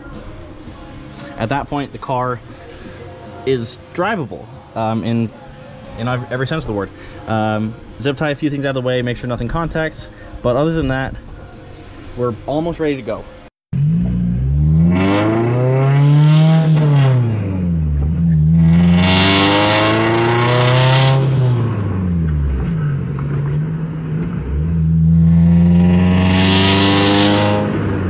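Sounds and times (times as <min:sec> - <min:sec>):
car engine revving: 0:13.8 - 0:28.0.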